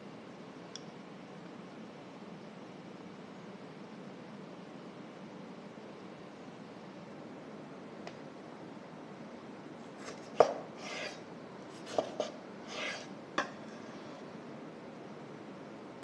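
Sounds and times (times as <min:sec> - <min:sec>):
short scrapes: 0:10.0 - 0:14.2.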